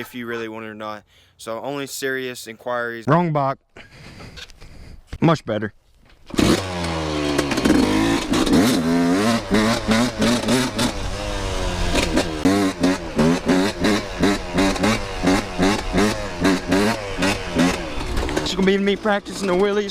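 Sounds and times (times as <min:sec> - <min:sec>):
dirt bike engine revving: 0:06.3 - 0:19.9.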